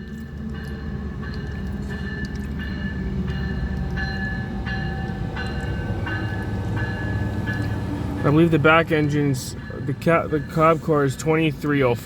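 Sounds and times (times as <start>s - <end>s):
train bell ringing: 0.0s - 12.0s
train rolling with low rumble: 0.0s - 12.0s.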